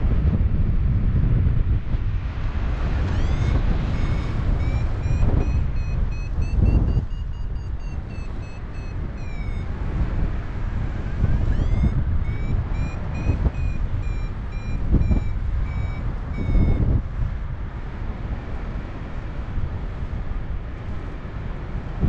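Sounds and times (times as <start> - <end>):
wind rumbling on microphone: 0.0 - 22.0
variometer short high beeps: 3.0 - 17.0.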